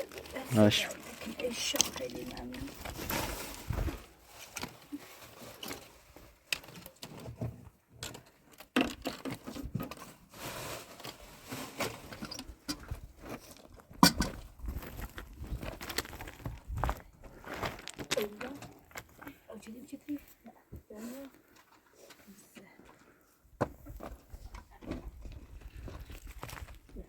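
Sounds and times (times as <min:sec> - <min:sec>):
rustling: 0:00.0 - 0:07.2, 0:09.9 - 0:13.8.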